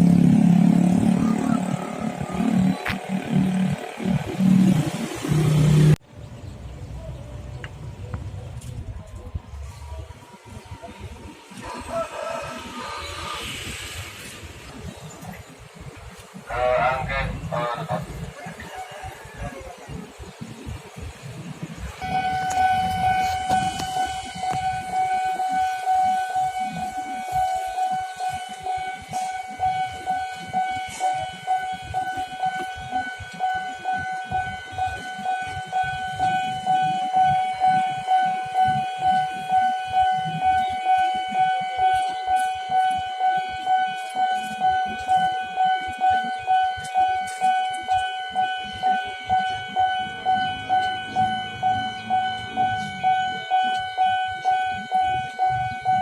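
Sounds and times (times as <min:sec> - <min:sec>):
low pulsing: 0:00.0 - 0:06.0
low rumbling noise: 0:00.0 - 0:28.4
level crossing alarm tone: 0:21.9 - 0:56.0.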